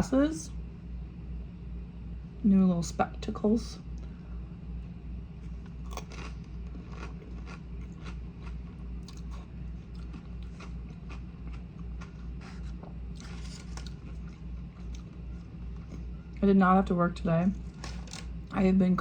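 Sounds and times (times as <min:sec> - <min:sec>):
low pulsing hum: 0:00.0 - 0:19.0
crunching and chewing food: 0:04.8 - 0:16.4, 0:17.5 - 0:18.7.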